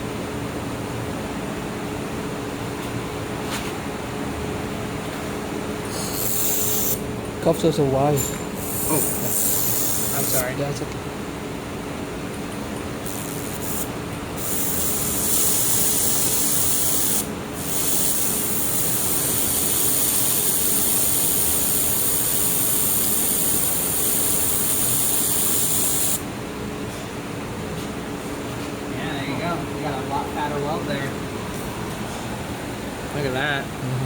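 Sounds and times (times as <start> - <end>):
steady hum: 0.0 - 34.0
welder hiss and sizzle: 5.9 - 7.0, 8.6 - 10.5, 13.1 - 26.2.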